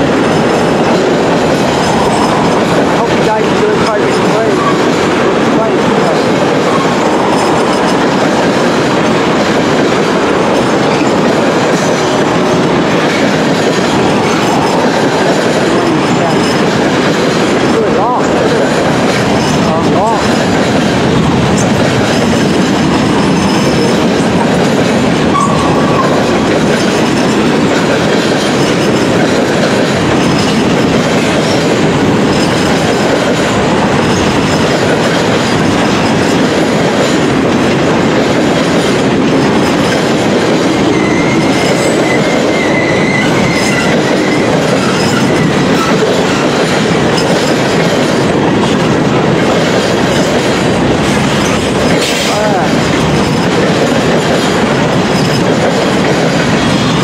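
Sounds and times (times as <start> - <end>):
freight train wheels on rails: 0.0 - 57.0
high wheel squeals: 40.9 - 46.5.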